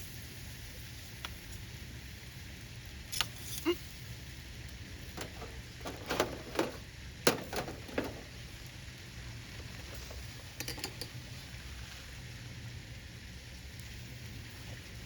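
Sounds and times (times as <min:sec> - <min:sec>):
light clicks and knocks: 0:05.2 - 0:08.3.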